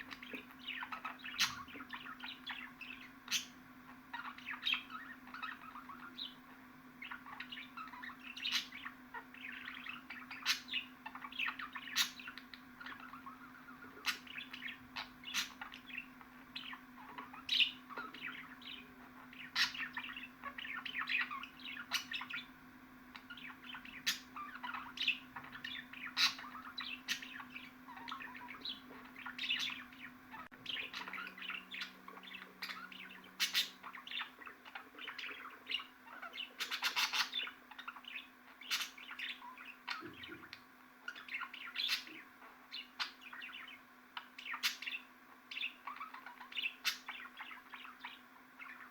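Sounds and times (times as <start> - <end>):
budgerigar chattering: 0.0 - 6.4, 7.0 - 22.5, 23.2 - 48.9
steady low hum: 0.0 - 36.7.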